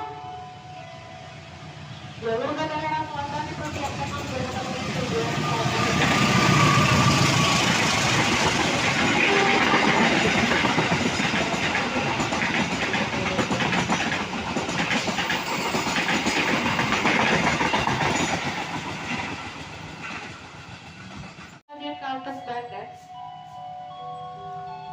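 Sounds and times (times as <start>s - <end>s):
train wheels clattering on rails: 3.4s - 21.6s.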